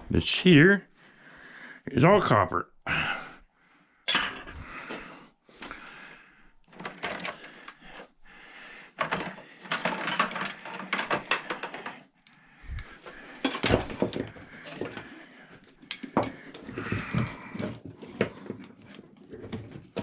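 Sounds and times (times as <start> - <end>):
scrap metal clattering into bucket: 6.8 - 7.5, 9.0 - 11.9, 13.3 - 15.1.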